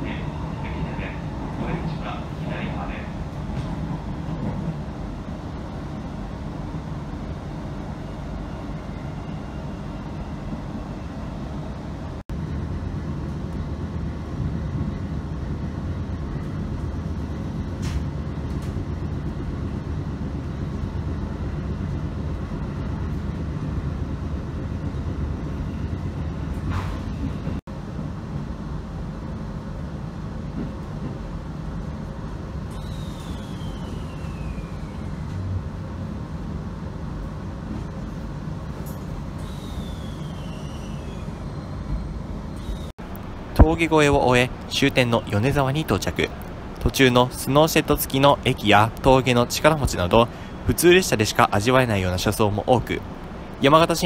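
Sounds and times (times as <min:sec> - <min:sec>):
train wheels rumbling on rail: 0:00.0 - 0:54.0
sharp squeaks or hisses: 0:32.7 - 0:35.0, 0:39.4 - 0:42.9.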